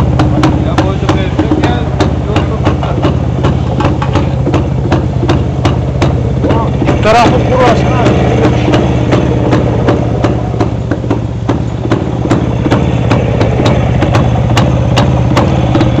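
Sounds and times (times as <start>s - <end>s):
two-stroke engine idling: 0.0s - 16.0s.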